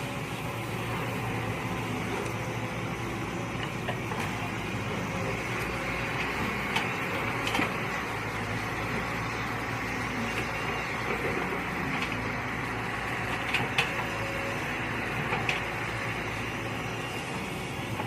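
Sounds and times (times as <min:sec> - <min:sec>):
excavator engine running: 0:00.0 - 0:18.0.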